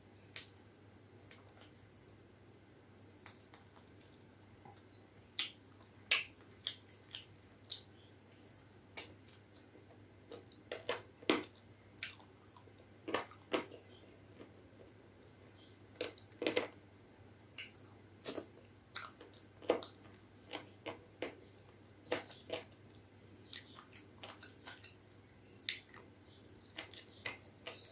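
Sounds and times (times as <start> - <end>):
low steady hum: 0.0 - 27.9
chewing and mouth clicks: 3.2 - 7.9, 11.5 - 13.6, 17.6 - 20.8, 23.5 - 25.0, 25.7 - 27.9.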